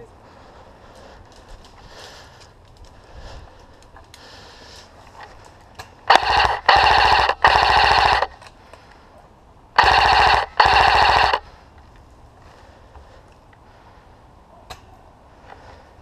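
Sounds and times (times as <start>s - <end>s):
airsoft rifle full-auto bursts: 6.1s - 8.4s, 9.8s - 11.4s.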